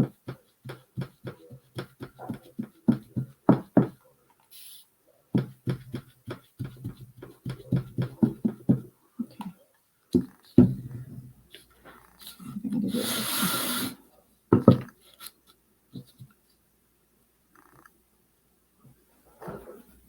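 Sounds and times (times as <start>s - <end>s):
brush tapping on wood: 0.0s - 4.0s, 5.4s - 8.9s
spray mister hiss: 13.0s - 14.0s.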